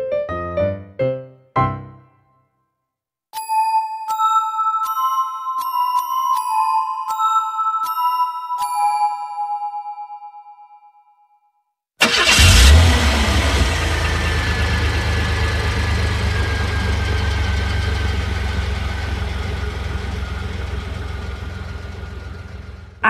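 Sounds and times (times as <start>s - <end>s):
chime-like music notes: 3.4s - 11.2s
car engine running: 12.2s - 23.0s.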